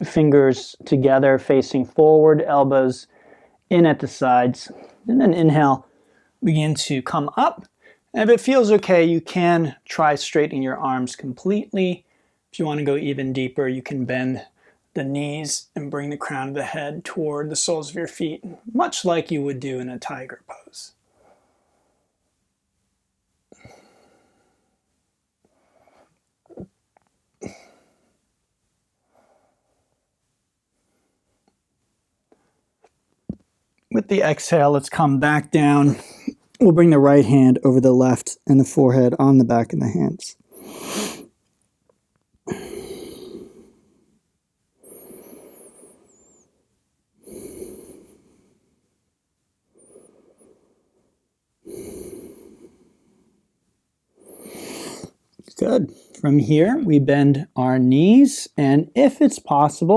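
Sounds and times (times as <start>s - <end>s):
person breathing: 3.1s - 3.6s, 5.8s - 6.4s, 12.0s - 12.5s, 23.5s - 24.9s, 42.5s - 44.2s, 44.8s - 46.5s, 47.2s - 48.9s, 49.7s - 53.5s.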